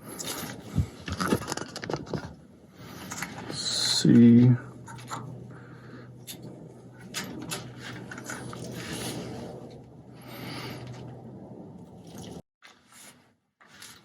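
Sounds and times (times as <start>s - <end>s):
motorcycle parts clicking and rattling: 0.0s - 2.4s
low hum: 2.5s - 12.4s.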